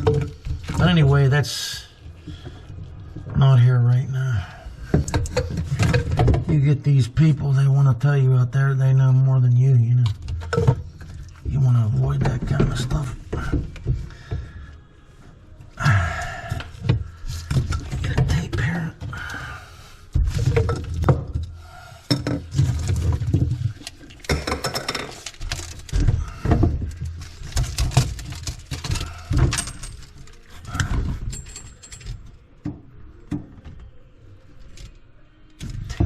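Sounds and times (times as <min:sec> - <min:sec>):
tools and metal parts clanking: 0:00.0 - 0:01.1, 0:04.9 - 0:06.5, 0:20.2 - 0:32.5.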